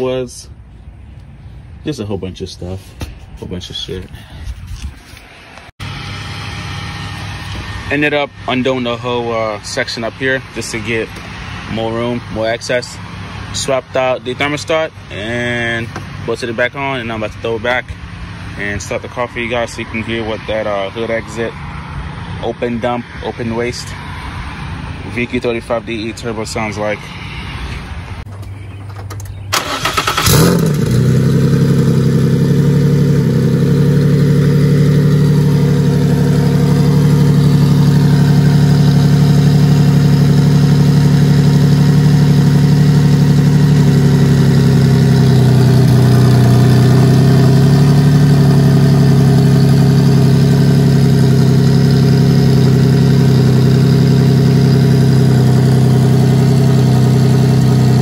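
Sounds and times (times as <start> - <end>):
car engine cranking: 28.2 - 58.0
car engine loud idle: 29.6 - 58.0.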